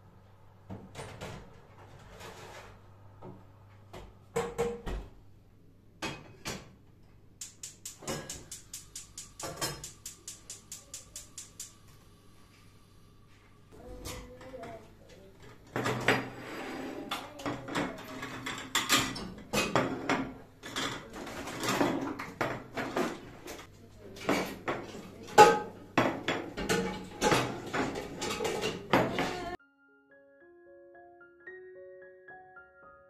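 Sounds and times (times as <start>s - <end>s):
dishes and pans clattering: 4.4s - 5.0s, 8.0s - 8.6s, 9.3s - 10.0s, 15.4s - 29.6s.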